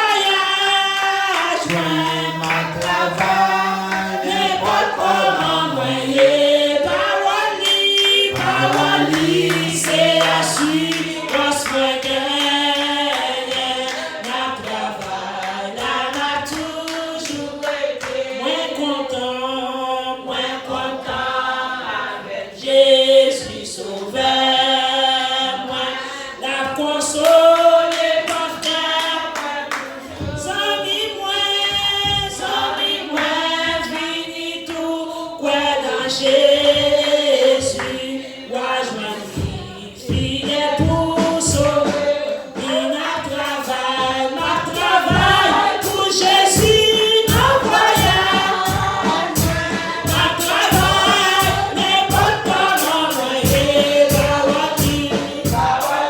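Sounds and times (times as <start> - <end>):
congregation singing a hymn: 0.0 - 56.0
steady beat: 1.5 - 12.3, 39.2 - 56.0.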